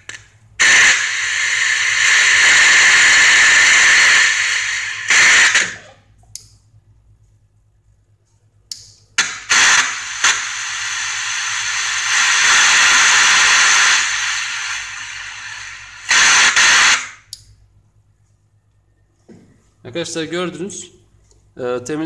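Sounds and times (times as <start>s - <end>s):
radio static hiss: 0.0s - 6.1s, 9.2s - 17.3s.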